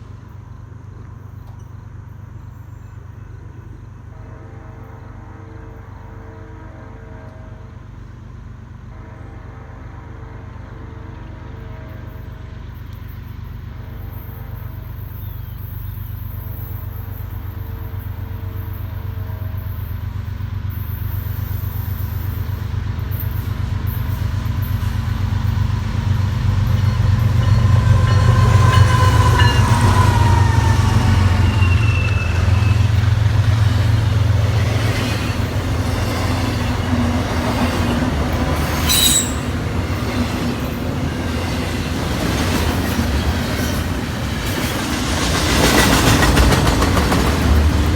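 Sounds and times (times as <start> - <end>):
train rumble passing: 0.0 - 47.9
train wheel squeals: 11.6 - 47.9.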